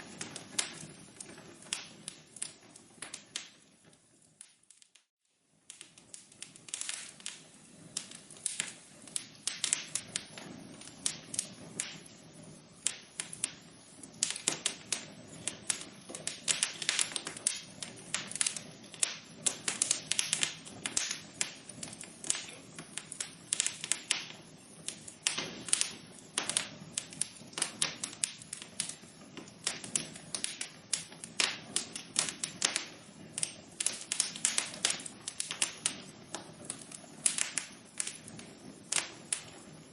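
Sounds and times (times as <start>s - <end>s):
hiss of flames: 0.0s - 39.9s
wood fire crackling and popping: 0.0s - 39.9s.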